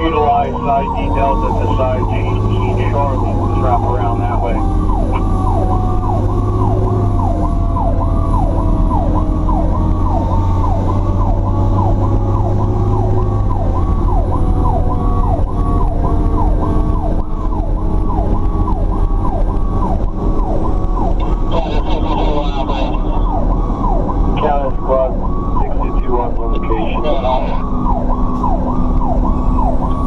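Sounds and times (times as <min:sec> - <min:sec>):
fire truck siren yelping: 0:00.0 - 0:30.0
steady siren tone: 0:00.0 - 0:30.0
truck engine: 0:00.0 - 0:30.0.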